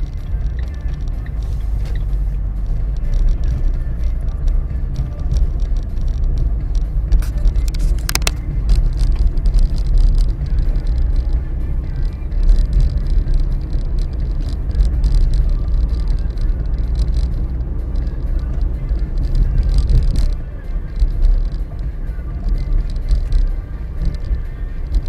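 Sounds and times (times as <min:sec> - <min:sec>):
road and driving rumble: 0:00.0 - 0:25.0
suspension knocking: 0:00.0 - 0:25.0.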